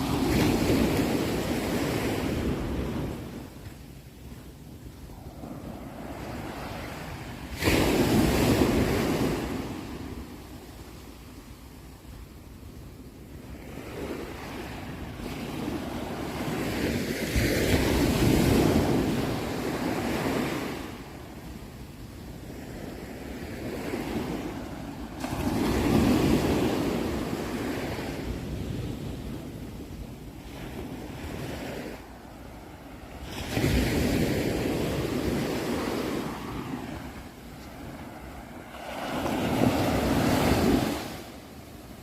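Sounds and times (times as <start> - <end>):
ocean waves breaking: 0.0 - 11.1, 22.5 - 42.0
wind rumbling on microphone: 0.0 - 42.0.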